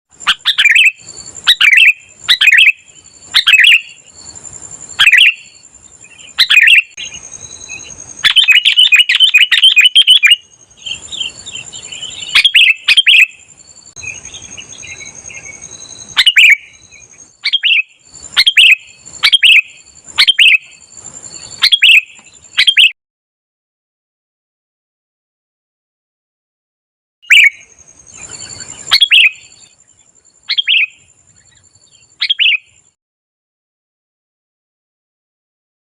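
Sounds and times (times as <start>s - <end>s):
bird singing chirping phrases: 0.2s - 22.9s, 27.2s - 33.0s.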